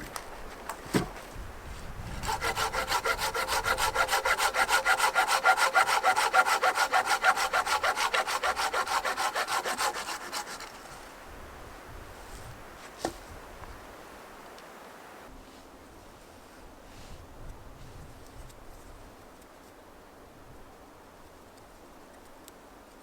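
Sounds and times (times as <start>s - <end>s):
hand saw cutting wood: 2.0s - 11.0s.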